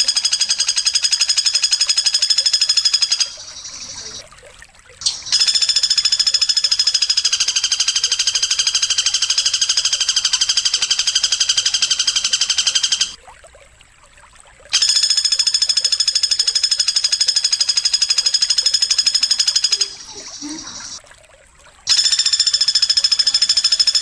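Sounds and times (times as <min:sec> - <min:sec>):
high buzzing bird trill: 0:00.0 - 0:04.2, 0:05.0 - 0:13.2, 0:14.8 - 0:21.0, 0:21.9 - 0:24.0.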